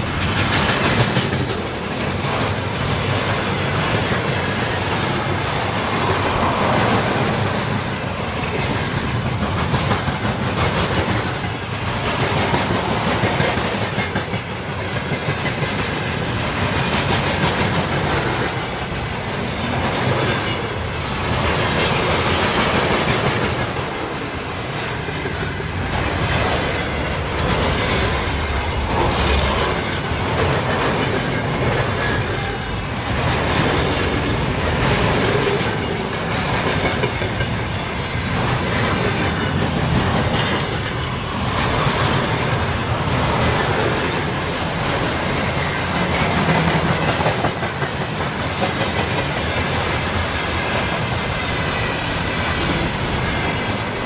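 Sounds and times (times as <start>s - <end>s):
train wheels clicking over rail joints: 0.0s - 54.0s
high rising squeal: 20.0s - 24.7s.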